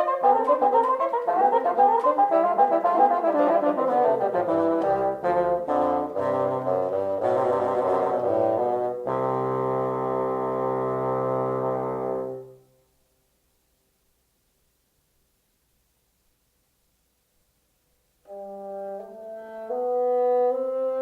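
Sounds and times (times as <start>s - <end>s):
brass music: 0.0s - 12.8s, 18.2s - 21.0s.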